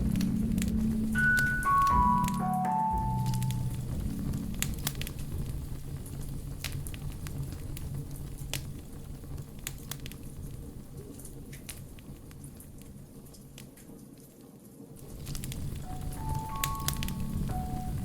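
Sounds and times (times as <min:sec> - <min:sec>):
wood fire crackling: 0:00.0 - 0:18.0
sharp pops and snaps: 0:03.2 - 0:14.3, 0:15.0 - 0:18.0.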